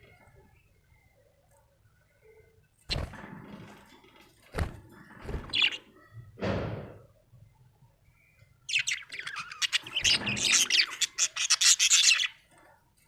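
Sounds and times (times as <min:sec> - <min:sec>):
budgerigar chirping: 0:08.7 - 0:12.4.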